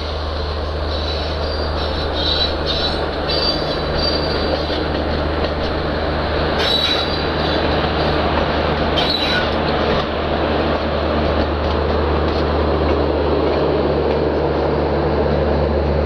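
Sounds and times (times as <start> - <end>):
train wheels squealing: 0.0 - 5.1, 6.5 - 8.2, 8.9 - 10.0
train rumbling past: 0.0 - 16.0.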